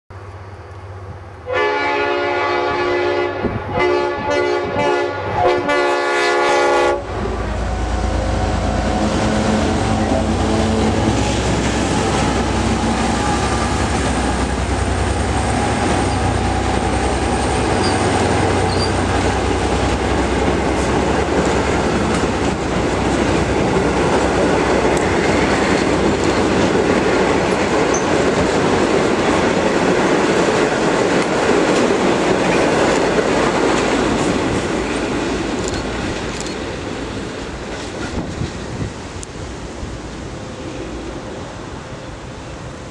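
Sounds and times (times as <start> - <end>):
low locomotive engine rumble: 0.1 - 42.9
locomotive horn blasts: 1.4 - 11.1.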